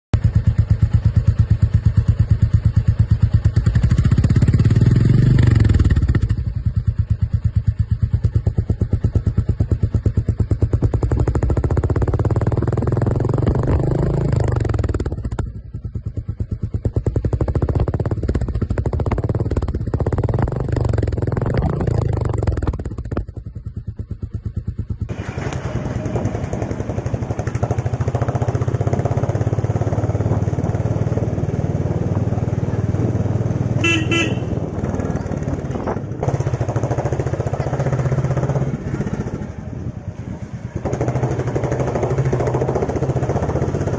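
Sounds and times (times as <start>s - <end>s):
motorcycle engine thumping and revving: 0.1s - 43.9s.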